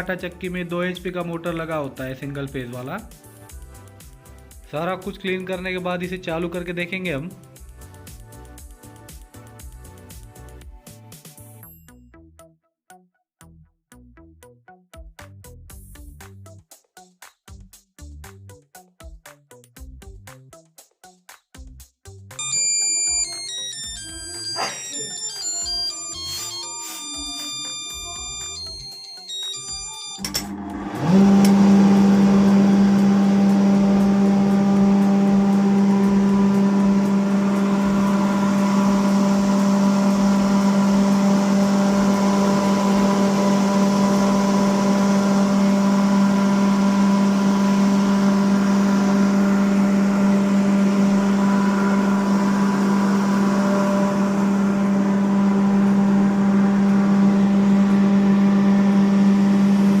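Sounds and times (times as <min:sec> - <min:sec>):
flour mill motor humming: 0:25.0 - 1:00.0.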